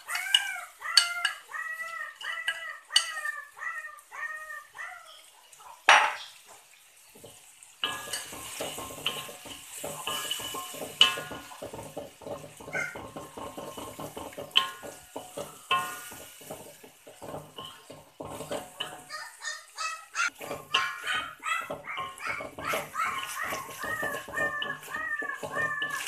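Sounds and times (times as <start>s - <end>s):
bird calls: 0.0s - 7.3s, 12.6s - 13.6s, 18.8s - 26.0s
paste sizzling in hot oil: 5.9s - 26.0s
wooden spatula scraping a wok: 7.2s - 19.4s, 20.2s - 26.0s.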